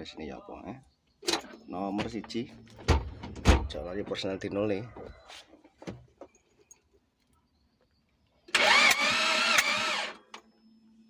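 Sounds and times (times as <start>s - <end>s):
starter motor cranking engine: 8.5s - 10.2s.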